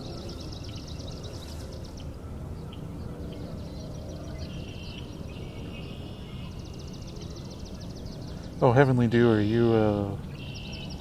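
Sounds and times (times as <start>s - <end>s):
songbird trills: 0.0s - 11.0s.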